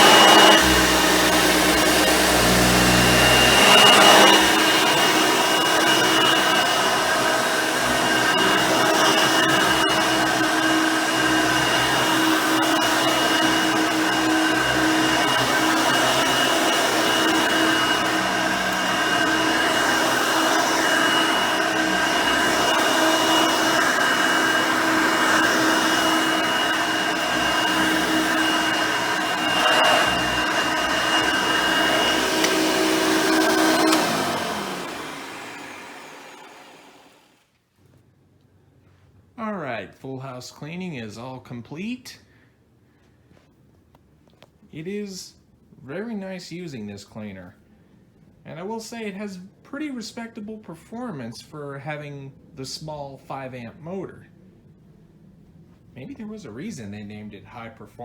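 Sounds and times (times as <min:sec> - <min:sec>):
vacuum cleaner running: 0:00.0 - 0:37.4.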